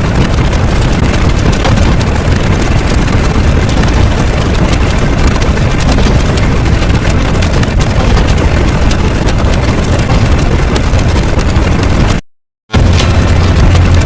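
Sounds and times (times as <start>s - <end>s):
loud low rumbling: 12.7s - 14.0s.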